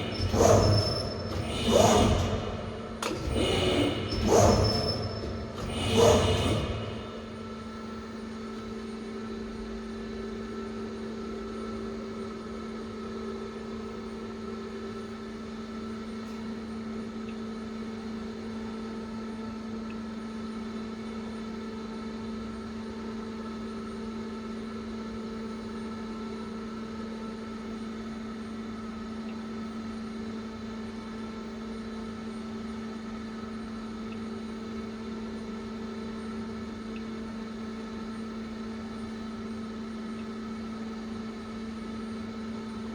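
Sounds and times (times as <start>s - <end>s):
machine hum: 0.0s - 10.8s.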